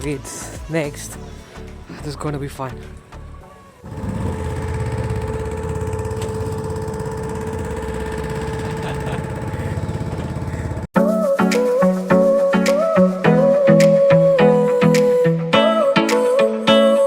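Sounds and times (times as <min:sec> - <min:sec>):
small boat motor chugging: 0:03.9 - 0:10.9.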